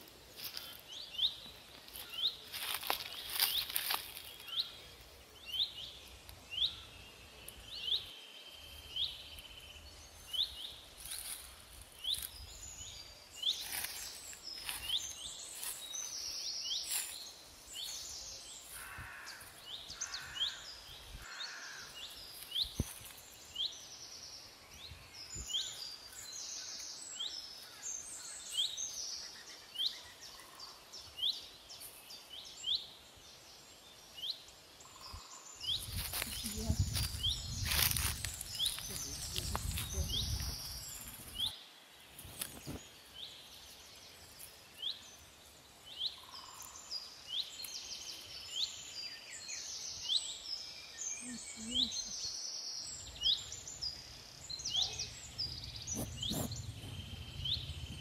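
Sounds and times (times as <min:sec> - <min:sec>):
dry leaves crackling underfoot: 0:00.0 - 0:20.6, 0:21.2 - 0:23.8, 0:35.7 - 0:45.5
birds twittering: 0:00.0 - 0:58.0.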